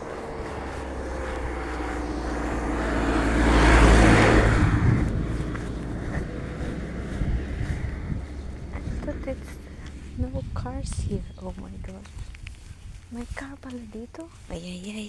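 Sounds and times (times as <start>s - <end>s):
car driving past: 0.0s - 11.9s.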